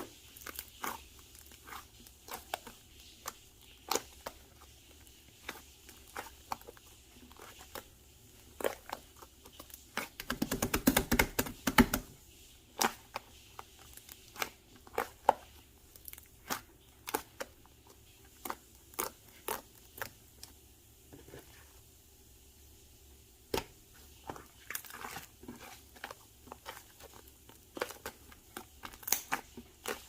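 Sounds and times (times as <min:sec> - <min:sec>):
hands squeezing slime: 0:00.0 - 0:20.6, 0:23.5 - 0:30.0.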